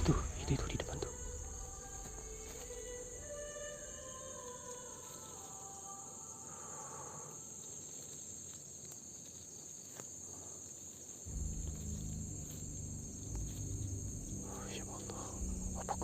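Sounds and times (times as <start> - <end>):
crickets trilling: 0.0 - 16.0
low rumble: 11.3 - 16.0.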